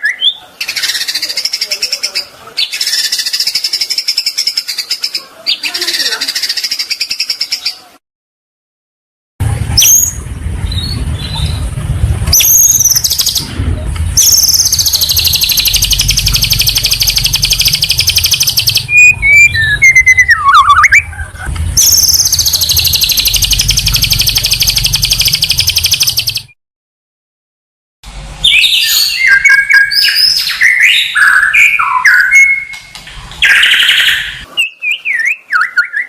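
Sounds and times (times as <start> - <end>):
warbled bird phrase: 0.0 - 8.0, 14.2 - 26.5, 28.4 - 32.8, 33.4 - 36.0
steady low hum: 9.4 - 26.4
high buzzing bird trill: 12.3 - 13.5, 14.2 - 21.2, 21.8 - 26.6, 28.4 - 32.8
rising bird whistles: 14.2 - 21.1, 33.4 - 36.0.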